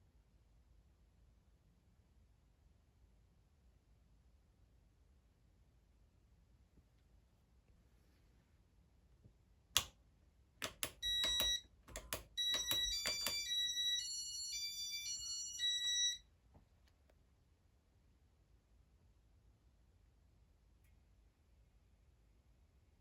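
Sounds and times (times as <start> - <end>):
sharp clicks: 10.6 - 13.5
electronic beeps: 10.8 - 16.2.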